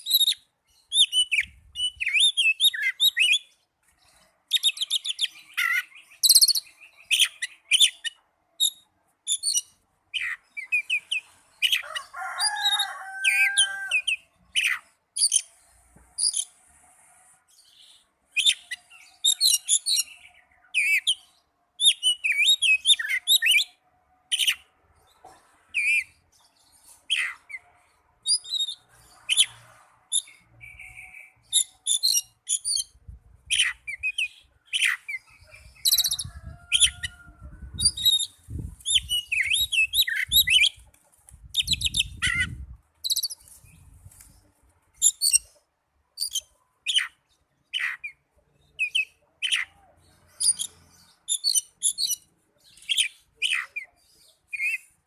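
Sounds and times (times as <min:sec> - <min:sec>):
bird chirps trills and whistles: 0:00.0 - 0:03.5, 0:04.1 - 0:11.8, 0:17.8 - 0:24.6, 0:28.2 - 0:37.1, 0:37.7 - 0:40.8, 0:41.5 - 0:43.9, 0:45.0 - 0:45.5, 0:46.2 - 0:55.0.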